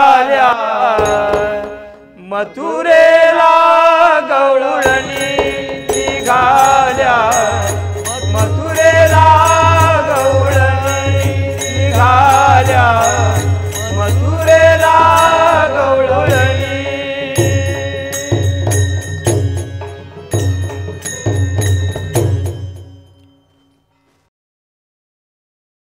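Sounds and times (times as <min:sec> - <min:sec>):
harmonium: 0:00.0 - 0:24.3
barrel drum: 0:01.0 - 0:02.1, 0:04.8 - 0:23.0
clinking small percussion: 0:01.0 - 0:02.1, 0:04.8 - 0:24.1
wavering melody: 0:04.8 - 0:24.2.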